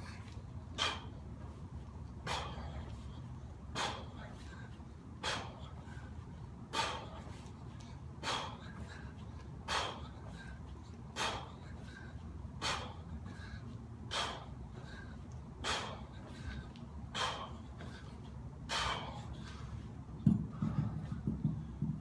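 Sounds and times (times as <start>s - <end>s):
man breathing out hard: 2.3s - 3.2s, 3.8s - 7.5s, 8.2s - 10.6s, 11.2s - 19.8s.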